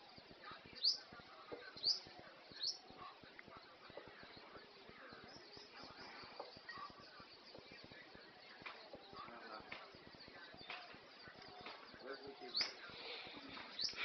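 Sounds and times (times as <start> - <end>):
small bird chirping: 0.0 - 14.0.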